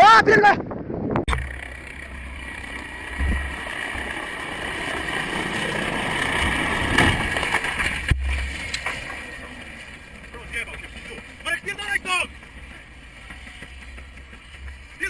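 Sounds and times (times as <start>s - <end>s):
wind buffeting microphone: 0.0s - 1.5s
vehicle engine: 1.3s - 15.0s.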